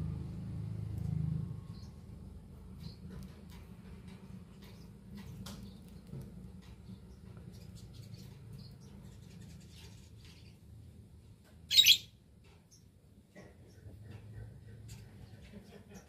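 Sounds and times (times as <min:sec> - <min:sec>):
lovebird shrill call: 0:11.7 - 0:12.1.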